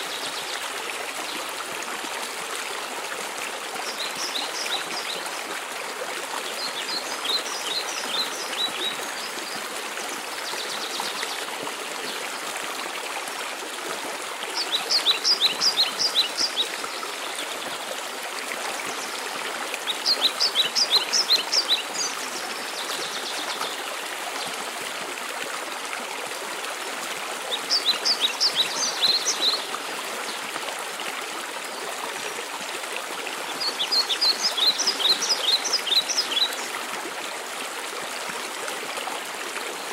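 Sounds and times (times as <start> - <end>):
songbird singing: 14.6 - 17.8, 19.8 - 23.9, 27.5 - 29.7, 33.5 - 36.7.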